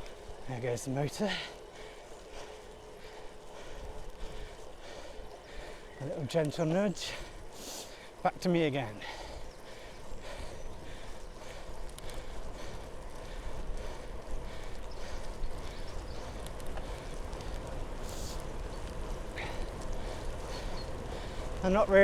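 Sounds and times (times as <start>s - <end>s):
bicycle tyres on wet road: 0.0s - 22.0s
wind buffeting microphone: 9.0s - 22.0s.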